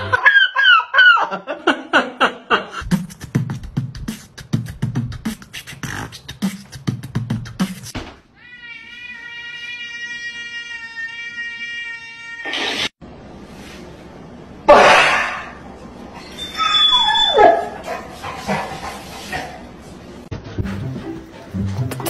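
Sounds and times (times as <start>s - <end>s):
beatboxing held tone: 2.8s - 8.0s
beatboxing mouth clicks: 2.8s - 8.0s, 21.8s - 22.0s.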